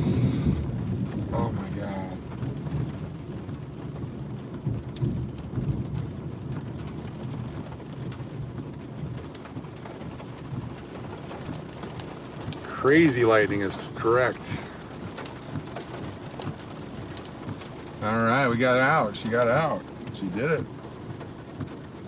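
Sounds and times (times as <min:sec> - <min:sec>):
low rumble: 0:00.0 - 0:09.2
heavy rain falling: 0:00.0 - 0:22.0
raindrops ticking close by: 0:00.0 - 0:22.0.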